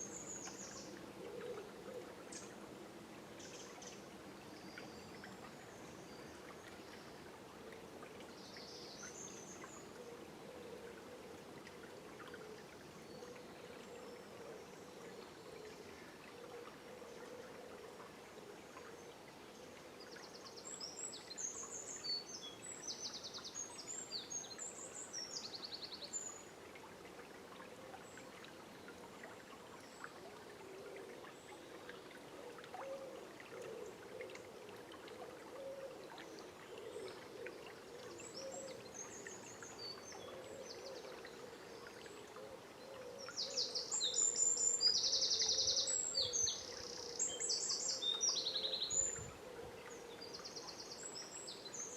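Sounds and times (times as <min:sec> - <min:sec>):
river flowing: 0:00.0 - 0:51.9
songbirds singing: 0:35.6 - 0:51.9.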